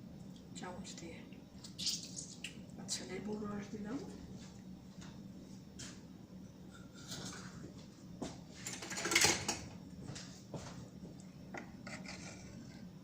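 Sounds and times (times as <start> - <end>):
spoon scraping a cooking pot: 11.6 - 12.9.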